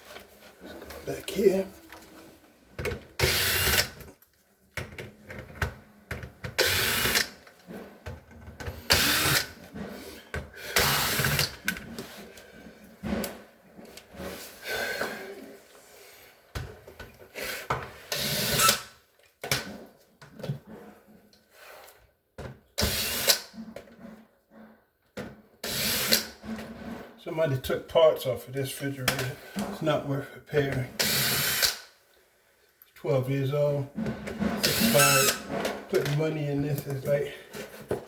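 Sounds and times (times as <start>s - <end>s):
power drill running: 3.2s - 3.9s, 6.6s - 7.3s, 8.9s - 9.4s, 10.8s - 11.5s, 31.0s - 31.7s, 34.6s - 35.4s.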